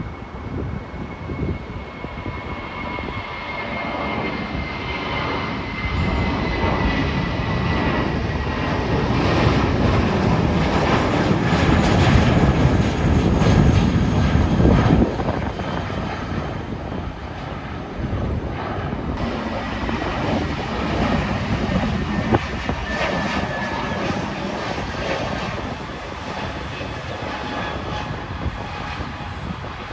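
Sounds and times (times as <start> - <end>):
high jet whine: 0.0 - 29.9
jet engines roaring: 0.0 - 29.9.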